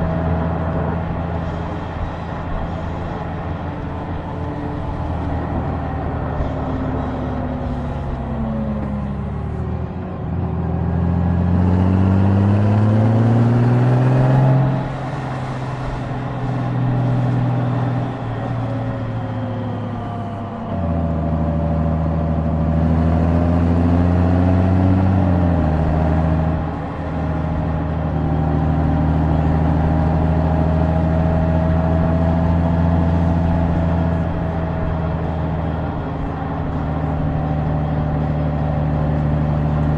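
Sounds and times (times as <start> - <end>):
motorcycle engine accelerating: 10.4 - 39.9.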